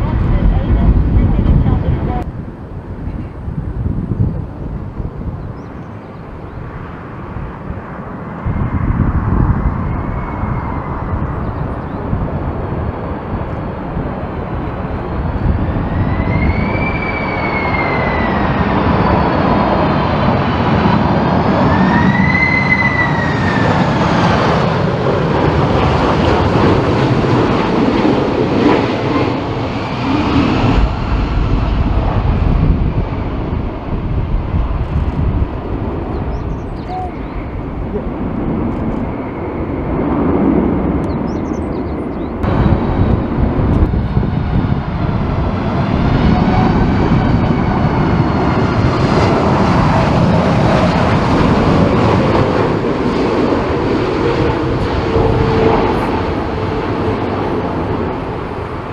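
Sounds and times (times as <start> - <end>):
jet engines rumbling: 0.0 - 58.9
jet fan whine: 0.0 - 58.9.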